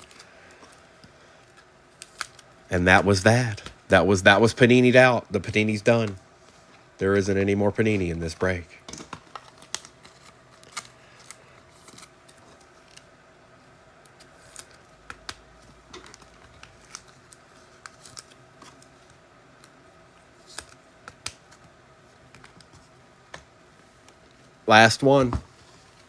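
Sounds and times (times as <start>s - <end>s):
faint steady hum: 0.0s - 26.0s
clicks and taps handling cards: 22.3s - 23.5s.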